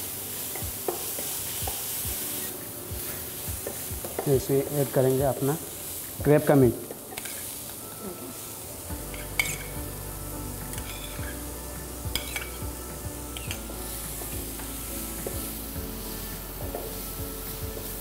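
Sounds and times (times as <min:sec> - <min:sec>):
food sizzling in a pan: 0:00.0 - 0:18.0
spatula scraping a pan: 0:10.8 - 0:11.4.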